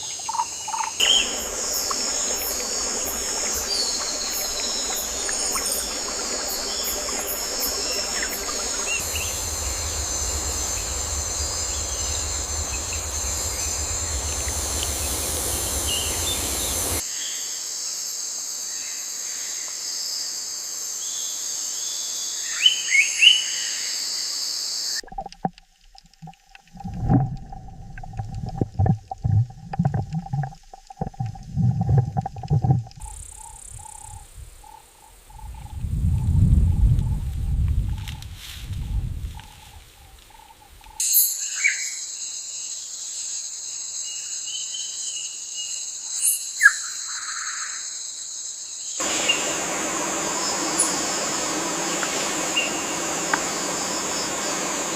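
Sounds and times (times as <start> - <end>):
insects chorus: 0.0 - 25.0, 33.0 - 54.9
thin steady tone: 1.0 - 17.0
bird chirps: 49.0 - 49.8.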